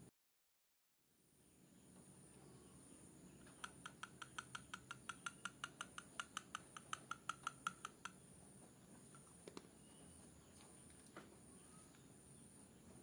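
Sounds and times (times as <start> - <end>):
crickets chirring: 1.6 - 10.5
rapid clicking chirps: 3.4 - 8.2.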